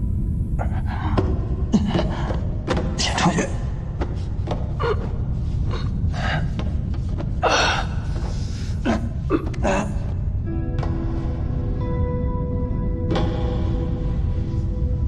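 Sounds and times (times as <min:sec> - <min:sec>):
low rumble: 0:00.0 - 0:15.0
people gasping and grunting: 0:00.6 - 0:10.4.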